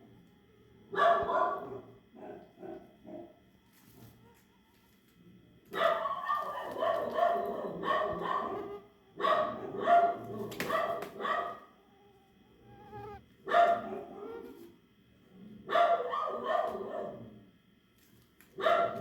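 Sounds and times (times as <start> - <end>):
dog barking: 0.9 - 3.3, 5.7 - 11.8, 12.7 - 14.4, 15.6 - 17.3, 18.6 - 19.0.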